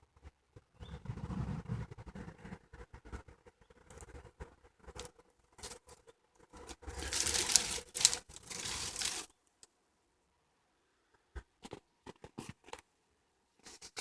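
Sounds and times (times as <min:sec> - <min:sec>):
footsteps crunching on woodland path: 0:06.9 - 0:09.3.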